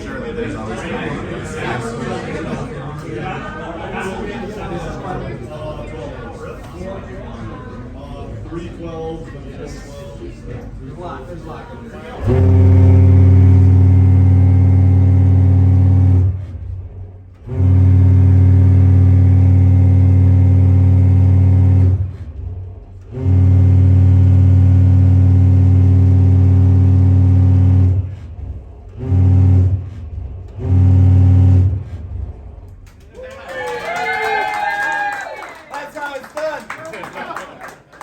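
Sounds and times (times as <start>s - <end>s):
deep ship horn blasts: 12.0s - 33.1s.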